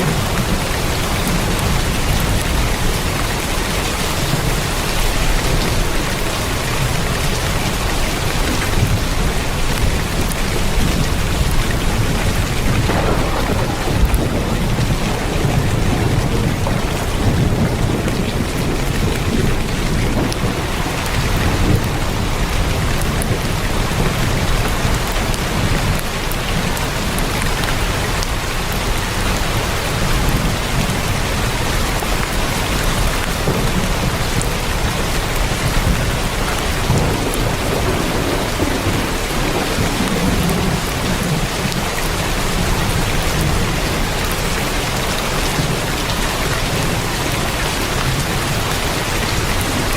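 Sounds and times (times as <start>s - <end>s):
heavy rain on a tin roof: 0.0s - 49.9s
low rumble: 12.6s - 19.6s.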